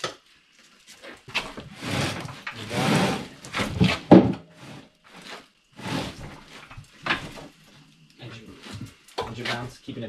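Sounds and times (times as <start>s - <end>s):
engine block scraping over wood: 1.3s - 7.8s.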